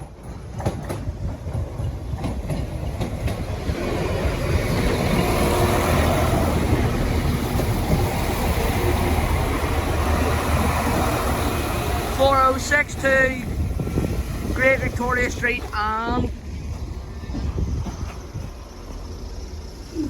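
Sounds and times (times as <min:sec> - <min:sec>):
diesel train passing: 0:00.0 - 0:20.0.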